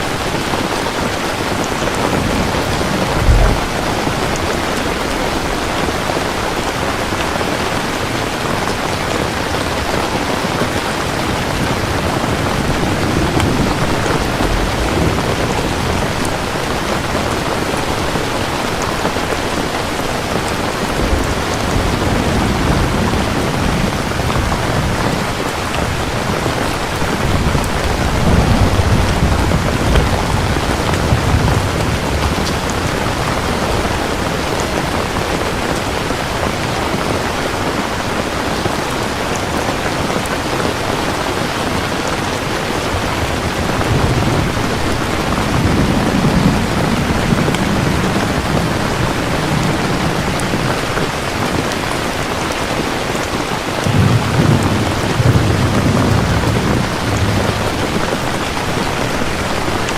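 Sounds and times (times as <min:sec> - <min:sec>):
heavy rain falling: 0:00.0 - 0:59.9
distant thunder rumbles: 0:01.3 - 0:07.1, 0:11.3 - 0:19.1, 0:20.4 - 0:37.2, 0:43.0 - 0:51.0, 0:53.8 - 0:59.8.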